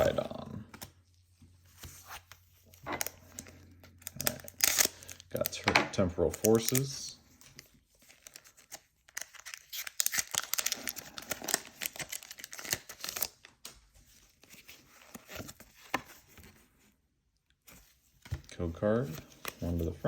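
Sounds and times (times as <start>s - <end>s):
foil wrapper tearing and crinkling: 4.0s - 5.6s, 6.3s - 6.9s, 8.0s - 13.5s.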